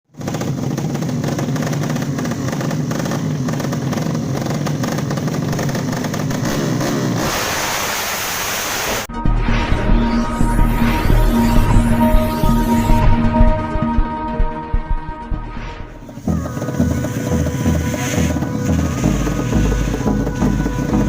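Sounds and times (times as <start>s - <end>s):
motorcycle engine running: 0.1s - 7.8s, 10.4s - 21.0s
rushing noise: 5.6s - 21.0s
background music: 9.1s - 21.0s.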